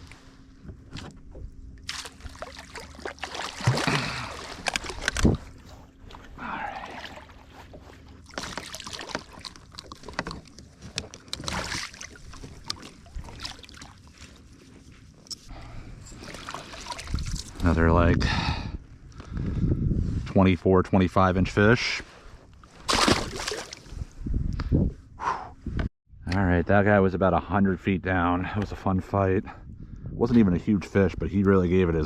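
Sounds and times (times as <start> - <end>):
water splashing and sloshing: 0.0 - 17.8, 22.1 - 24.2
knocks and rustles on kayak: 7.6 - 13.5.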